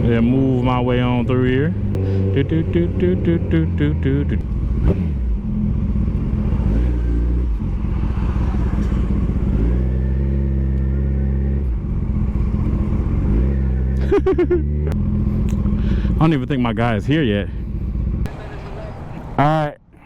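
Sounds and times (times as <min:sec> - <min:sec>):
motorcycle engine running: 0:00.0 - 0:18.3.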